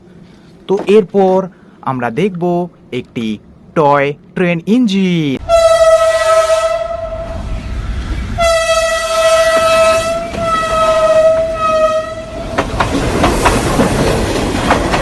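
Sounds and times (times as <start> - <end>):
toy train horn toot: 5.4 - 7.2, 8.4 - 12.4.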